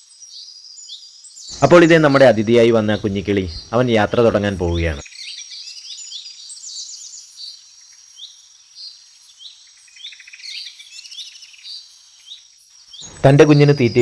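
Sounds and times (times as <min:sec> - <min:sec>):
small birds chirping: 0:00.0 - 0:14.0
high insect drone: 0:01.5 - 0:05.0, 0:13.0 - 0:14.0.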